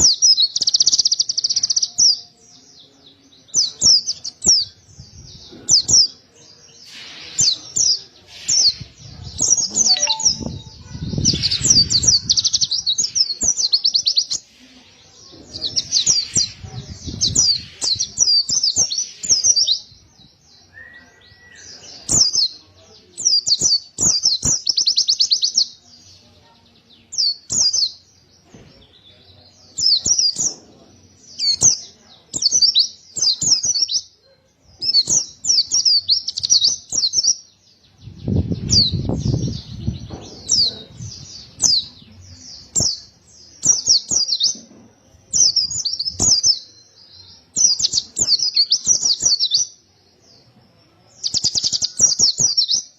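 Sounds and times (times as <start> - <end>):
bird twittering: 9.5 - 12.6.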